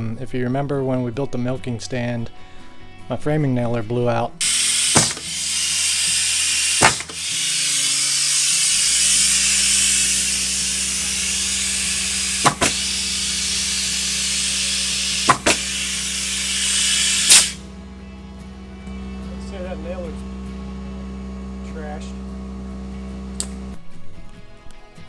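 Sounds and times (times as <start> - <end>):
air hissing from nail gun: 4.4 - 17.6
nail gun clacks: 4.4 - 17.6
low steady hum: 4.6 - 24.4.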